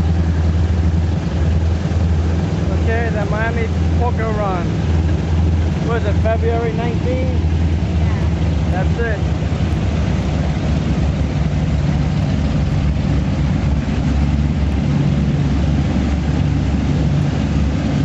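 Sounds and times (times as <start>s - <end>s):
powerboat engines droning: 0.0s - 18.0s
water rushing: 0.0s - 18.0s
wind: 0.0s - 18.0s.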